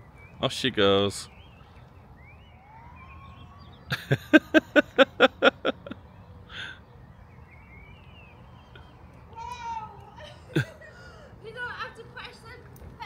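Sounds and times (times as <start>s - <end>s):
faint bird chirps: 0.0s - 4.4s, 6.0s - 10.3s.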